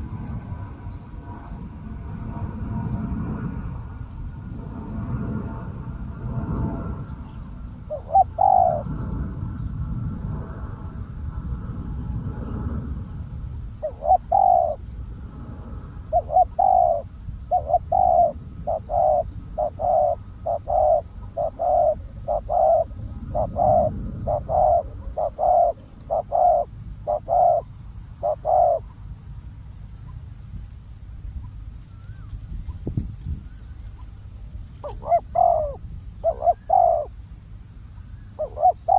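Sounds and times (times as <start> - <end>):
dove cooing: 7.9 - 9.0, 13.8 - 14.8, 16.1 - 28.9, 34.8 - 37.2, 38.4 - 38.9.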